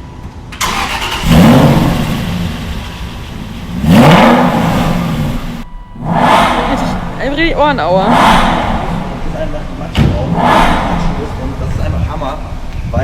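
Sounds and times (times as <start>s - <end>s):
car engine revving and idling: 0.5s - 13.0s.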